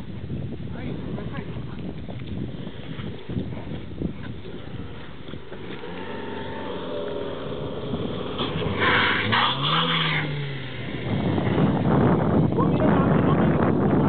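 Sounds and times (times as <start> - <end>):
car engine under load: 2.4 - 12.7.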